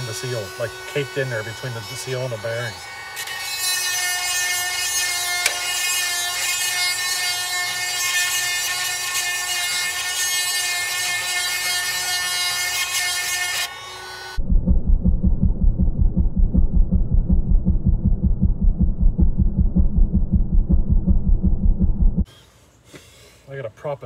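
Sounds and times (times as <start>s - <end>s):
chain sharpener grinding: 0.3s - 14.0s.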